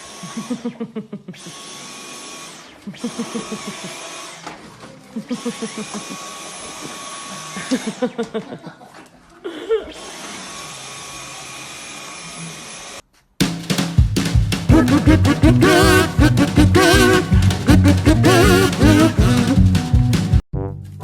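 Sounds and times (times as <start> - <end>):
small motor humming: 0.0 - 0.8, 1.4 - 8.2, 9.9 - 13.0
upbeat music: 14.0 - 20.4
voice-like pulses: 14.7 - 19.7.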